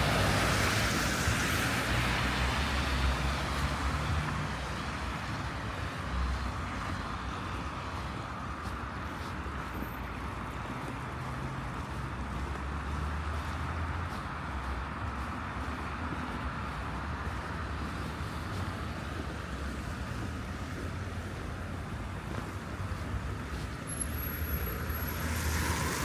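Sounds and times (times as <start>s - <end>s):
car engines: 0.0s - 26.0s
tyres on snowy roads: 0.0s - 26.0s
vehicle passing: 10.7s - 26.0s.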